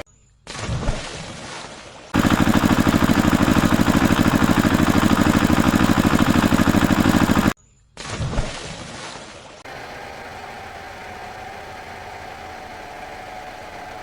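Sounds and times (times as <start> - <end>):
cartoon engine chugging: 2.2 - 7.6.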